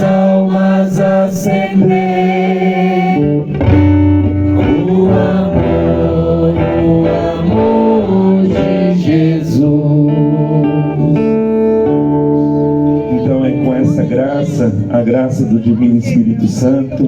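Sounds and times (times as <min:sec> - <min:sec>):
voices singing a hymn: 0:00.0 - 0:12.1
guitar accompaniment: 0:00.0 - 0:17.0.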